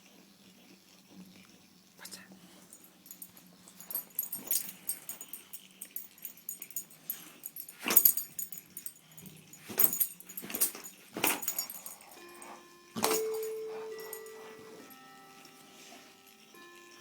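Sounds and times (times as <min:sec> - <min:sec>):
ringing musical tone: 0:11.5 - 0:17.0.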